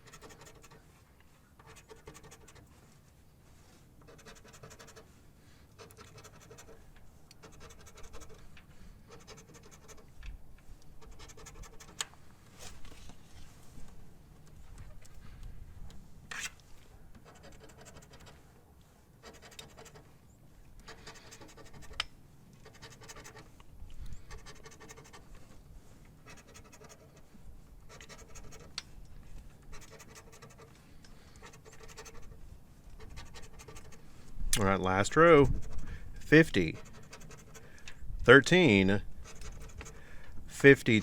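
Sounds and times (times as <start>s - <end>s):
scratching lottery ticket: 0.0s - 1.0s, 1.6s - 3.0s, 3.7s - 5.2s, 5.8s - 10.2s, 10.9s - 12.0s, 17.2s - 18.5s, 19.2s - 20.1s, 20.8s - 22.0s, 22.6s - 23.6s, 24.2s - 28.8s, 29.5s - 41.0s.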